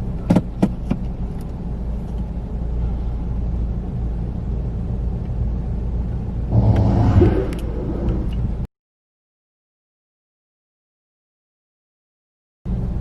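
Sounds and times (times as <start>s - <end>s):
low rumble inside car: 0.0s - 8.7s, 12.7s - 13.0s
loud rushing noise: 6.4s - 8.6s.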